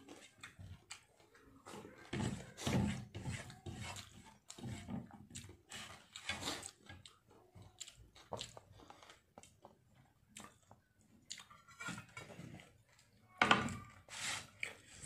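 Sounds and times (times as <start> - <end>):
person chewing food: 0.0 - 13.4
fingers working rice on plate: 1.7 - 7.1.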